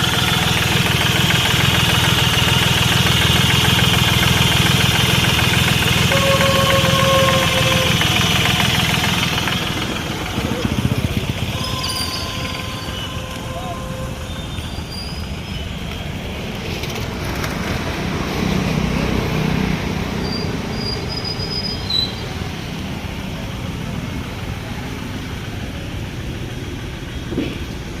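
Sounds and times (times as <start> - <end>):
car engine knocking: 0.0 - 14.8.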